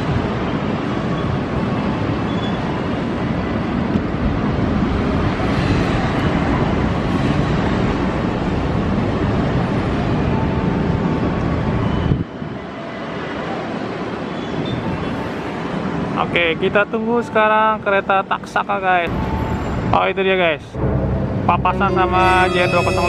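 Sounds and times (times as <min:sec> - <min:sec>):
train wheels rumbling on rails: 0:00.0 - 0:16.2.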